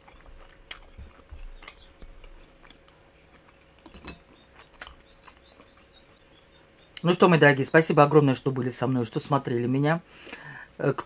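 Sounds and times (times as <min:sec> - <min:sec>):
chewing soft food: 0:00.0 - 0:07.1.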